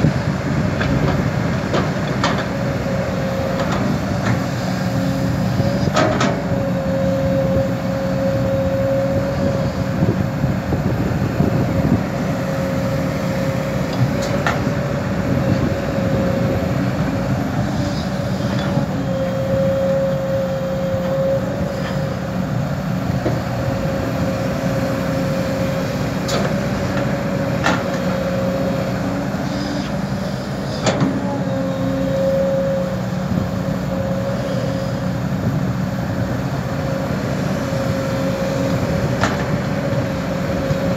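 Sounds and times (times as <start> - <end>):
excavator diesel engine running: 0.0 - 40.9
hydraulic whine: 0.0 - 40.9.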